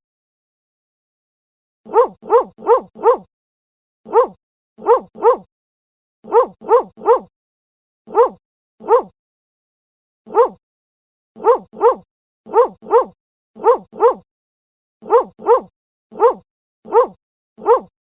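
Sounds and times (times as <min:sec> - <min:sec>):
dog barking: 0:01.9 - 0:03.3, 0:04.1 - 0:05.5, 0:06.2 - 0:07.3, 0:08.1 - 0:09.2, 0:10.3 - 0:10.6, 0:11.4 - 0:14.3, 0:15.0 - 0:17.9.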